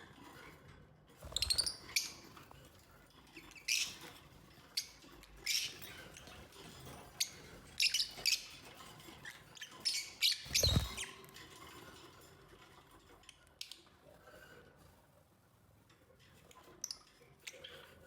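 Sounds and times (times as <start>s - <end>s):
lovebirds chirping: 10.3s - 11.1s.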